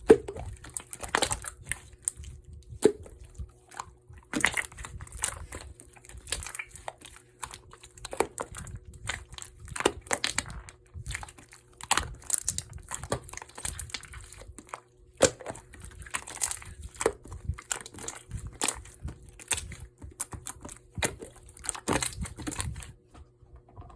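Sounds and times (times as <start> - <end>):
crinkling handling noise: 0.0 - 23.9.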